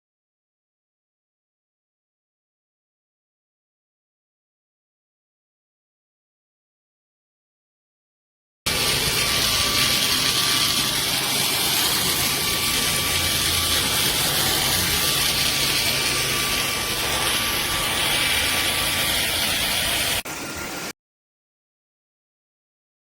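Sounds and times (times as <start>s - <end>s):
stick vacuum running: 8.7s - 20.9s.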